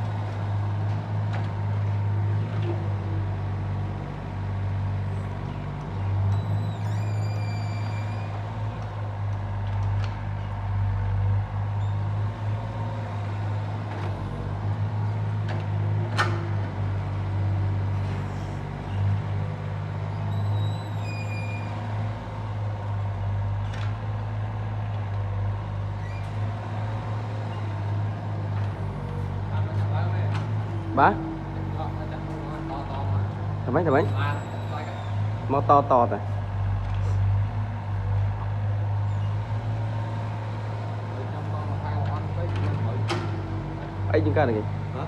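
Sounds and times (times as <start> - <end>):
excavator diesel engine running: 0.0 - 45.0
short high squeaks: 6.3 - 8.4, 20.1 - 21.9, 34.0 - 35.4.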